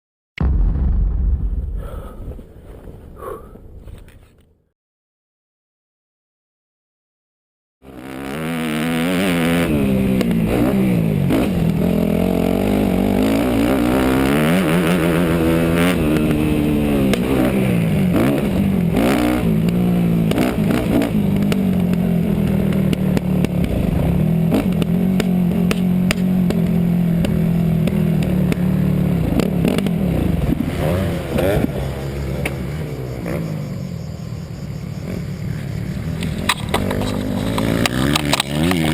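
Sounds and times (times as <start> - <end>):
motorbike engine revving: 7.8 - 38.9
sharp knocks and clatter: 36.2 - 38.9.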